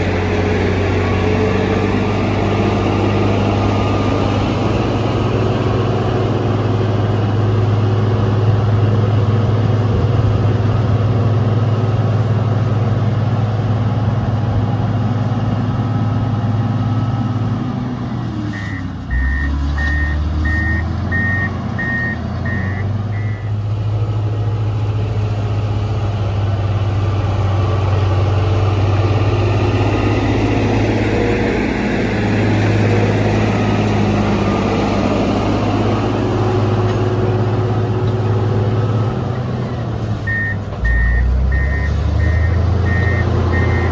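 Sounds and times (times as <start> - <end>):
diesel engine running: 0.0 - 43.9
reversing alarm beeping: 18.6 - 23.6, 40.3 - 43.9.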